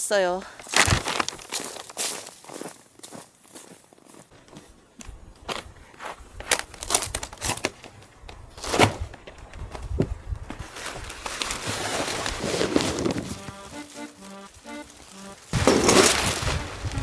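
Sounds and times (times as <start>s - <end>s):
dry material crunching and rustling: 0.6s - 2.6s, 10.5s - 17.0s.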